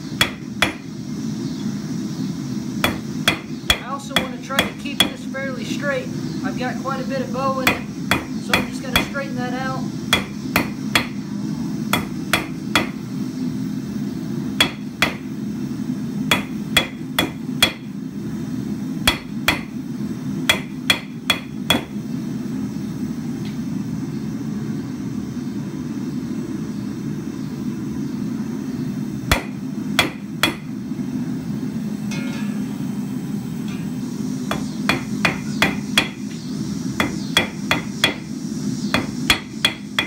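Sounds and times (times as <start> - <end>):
steady low hum: 0.0 - 40.0
hammer striking steel rod: 0.2 - 0.8, 2.8 - 5.1, 7.7 - 9.1, 10.1 - 11.2, 11.9 - 13.0, 14.6 - 15.3, 16.3 - 17.9, 19.1 - 19.7, 20.5 - 21.9, 29.3 - 30.7, 37.0 - 38.3, 38.9 - 40.0.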